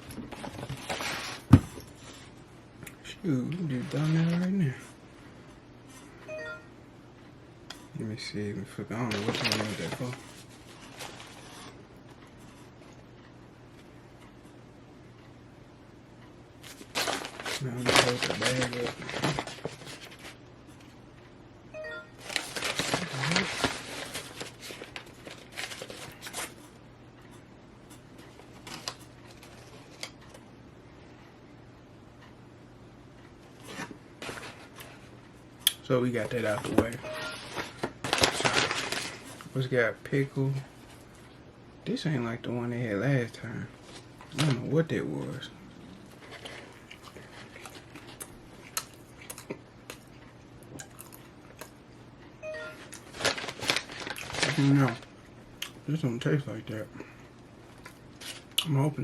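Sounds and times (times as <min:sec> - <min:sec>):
low room hum: 0:00.0 - 0:59.0
food packaging rustling and crinkling: 0:00.2 - 0:02.3, 0:03.6 - 0:04.6, 0:08.8 - 0:11.8, 0:16.6 - 0:20.9, 0:22.2 - 0:26.8, 0:28.2 - 0:30.4, 0:33.6 - 0:35.1, 0:36.1 - 0:39.6, 0:43.8 - 0:44.7, 0:46.0 - 0:51.7, 0:52.8 - 0:55.2, 0:57.6 - 0:58.6
short pitched tone: 0:37.0 - 0:37.6
person chewing: 0:45.8 - 0:51.8.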